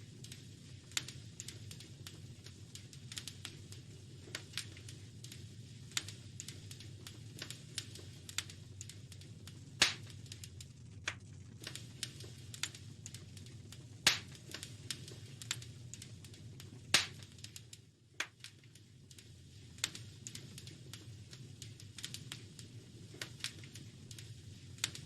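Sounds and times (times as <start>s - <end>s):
low steady rumble: 0.0s - 18.2s
wood fire crackling: 0.0s - 25.0s.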